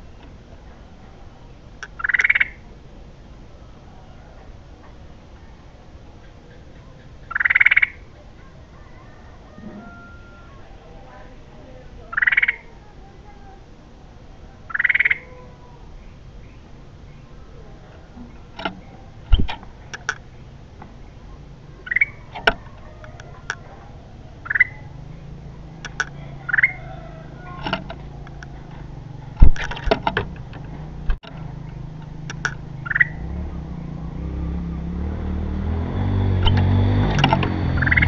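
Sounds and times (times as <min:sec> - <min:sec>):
low vehicle rumble: 0:12.7 - 0:38.0
sharp clicks: 0:18.6 - 0:20.3, 0:25.8 - 0:26.7, 0:29.4 - 0:33.1
bulbul rising chirps: 0:32.3 - 0:33.3.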